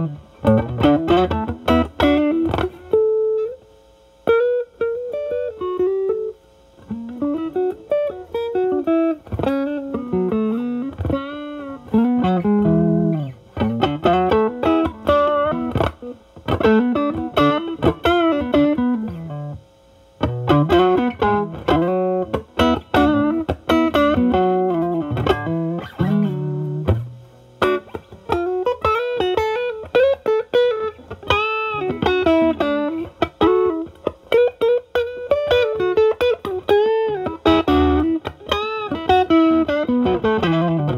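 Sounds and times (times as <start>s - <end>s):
overdriven electric guitar blues: 0.0s - 40.9s.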